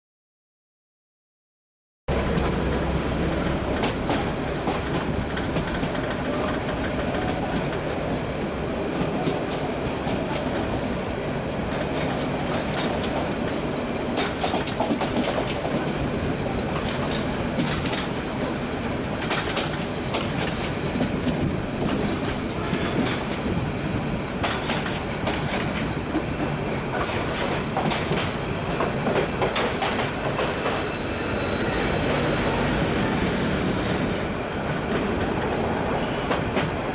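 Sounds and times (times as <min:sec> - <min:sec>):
train wheels rumbling: 0:02.1 - 0:36.9
wheels clicking over rail joints: 0:19.2 - 0:23.5
high-pitched wheel squeal: 0:20.7 - 0:33.2.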